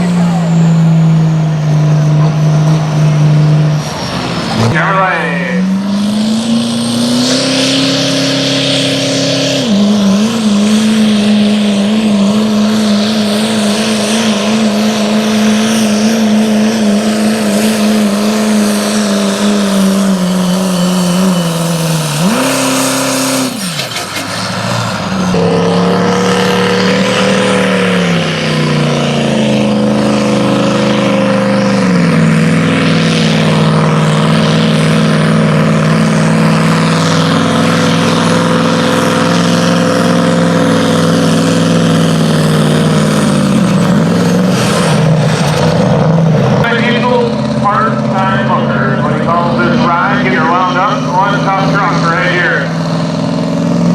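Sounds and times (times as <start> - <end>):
truck engine revving hard: 0.0 - 53.9.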